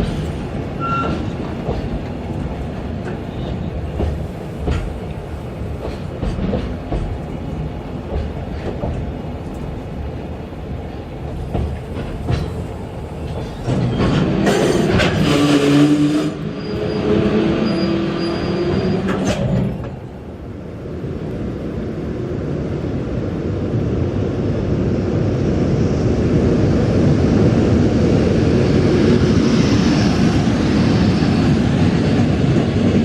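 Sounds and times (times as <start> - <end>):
train wheels clacking: 0.0 - 20.3.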